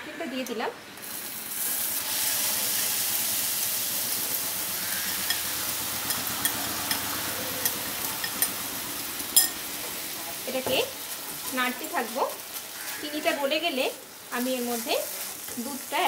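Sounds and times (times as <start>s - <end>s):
coconut sizzling in pan: 0.4s - 16.0s
utensils clicking against pan: 5.2s - 8.6s.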